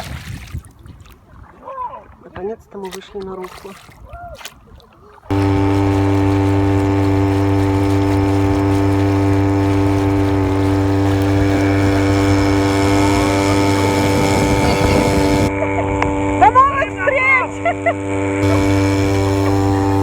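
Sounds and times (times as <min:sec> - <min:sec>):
motor humming steadily: 0:05.3 - 0:20.0.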